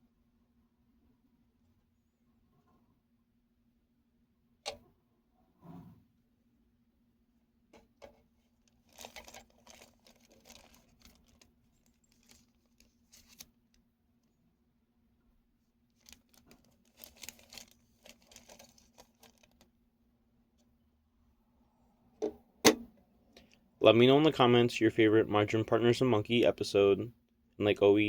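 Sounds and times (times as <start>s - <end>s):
faint low hum: 0.0s - 28.0s
faint rustling and light clicks: 7.8s - 14.4s.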